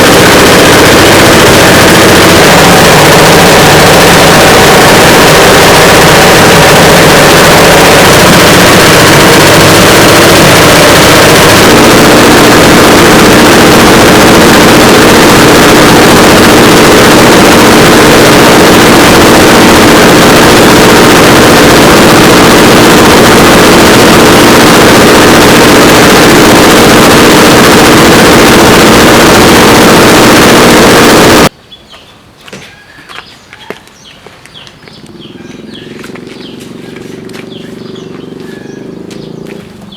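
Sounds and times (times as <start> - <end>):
loud engine running: 0.0 - 31.5, 35.1 - 39.9.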